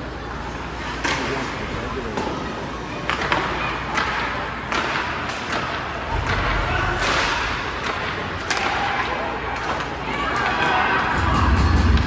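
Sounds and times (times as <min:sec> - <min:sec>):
ice rink background noise: 0:00.0 - 0:12.0
hockey sticks and puck clacking: 0:00.6 - 0:02.4, 0:03.0 - 0:11.2.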